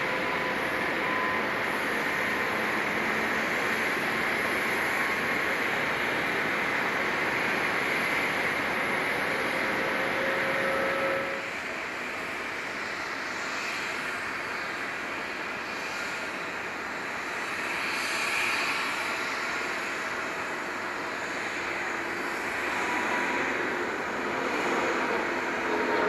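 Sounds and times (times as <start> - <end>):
loud noise with held tone: 0.0 - 12.2
jet engines at takeoff power: 0.0 - 26.0.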